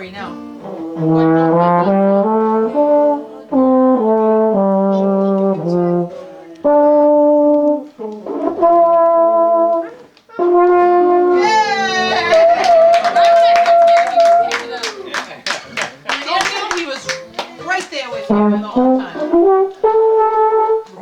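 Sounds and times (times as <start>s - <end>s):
solo brass instrument melody: 0.3s - 11.4s, 18.2s - 21.0s.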